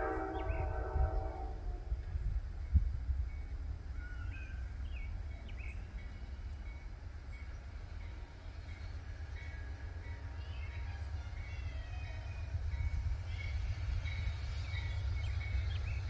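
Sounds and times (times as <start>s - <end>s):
freight train rumble: 0.0s - 16.0s
birds chirping: 4.0s - 16.0s.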